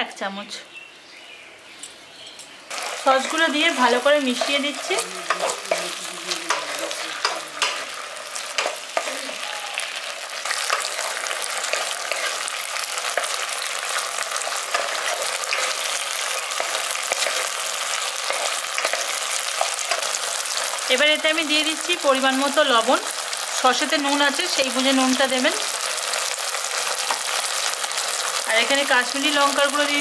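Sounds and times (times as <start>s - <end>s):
vegetables sizzling in oil: 2.6s - 30.0s
spatula knocking and scraping pan: 2.8s - 9.2s.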